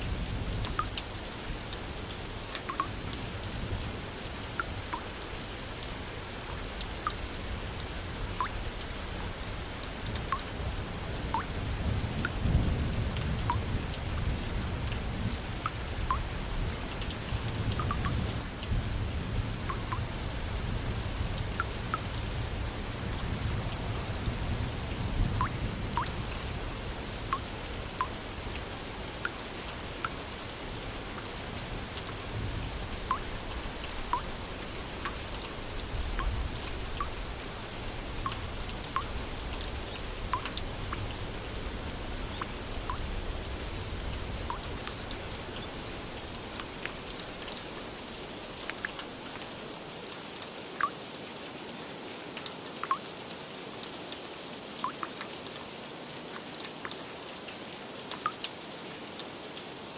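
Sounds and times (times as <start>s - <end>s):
steady rain falling: 0.0s - 59.9s
raindrops plinking: 0.6s - 3.0s, 4.5s - 5.2s, 8.3s - 8.9s, 9.8s - 10.6s, 11.2s - 12.6s, 14.9s - 18.8s, 19.6s - 20.1s, 21.4s - 22.1s, 25.4s - 26.6s, 27.2s - 32.3s, 32.9s - 47.8s, 48.6s - 49.3s, 50.8s - 51.0s, 52.4s - 53.1s, 54.8s - 55.3s, 58.1s - 58.5s.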